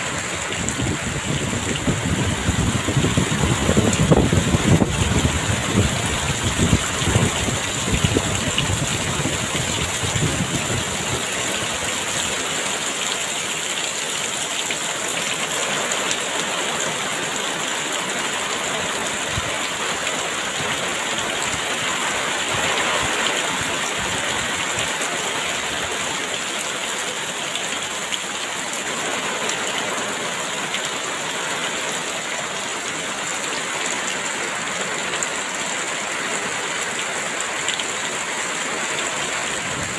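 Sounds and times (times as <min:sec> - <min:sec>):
wind gusts rumbling: 0:00.0 - 0:12.0, 0:39.3 - 0:39.9
heavy rain pouring: 0:00.0 - 0:39.9.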